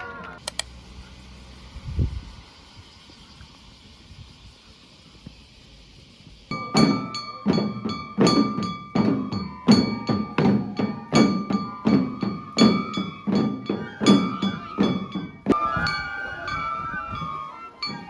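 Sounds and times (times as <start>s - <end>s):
drums and metal gongs: 6.5s - 18.0s.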